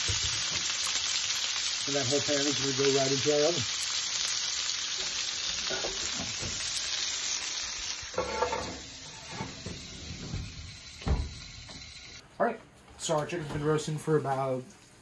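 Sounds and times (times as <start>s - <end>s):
food sizzling in a pan: 0.0s - 12.2s
low thump: 10.2s - 11.4s.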